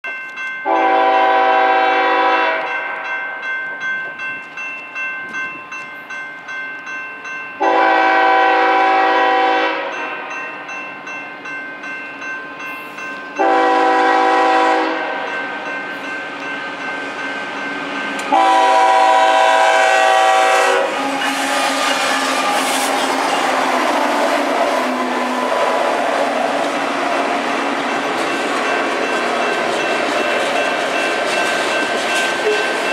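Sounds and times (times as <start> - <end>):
locomotive air horn blasts: 0.7 - 2.8, 7.6 - 10.1, 13.4 - 15.3, 18.3 - 23.4
train rumbling past: 7.3 - 32.9
wheels clicking over rail joints: 20.9 - 32.9.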